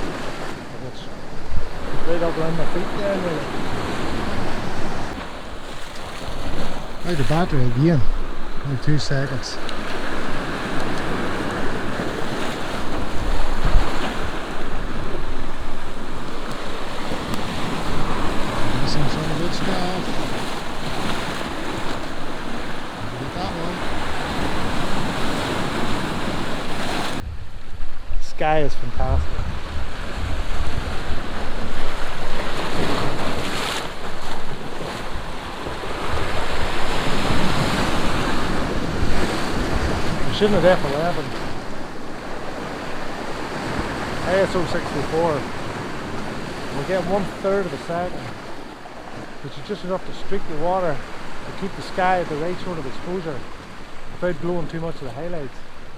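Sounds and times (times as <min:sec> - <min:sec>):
sea waves washing in: 0:00.0 - 0:28.0, 0:29.2 - 0:55.9
wind buffeting microphone: 0:03.4 - 0:40.4.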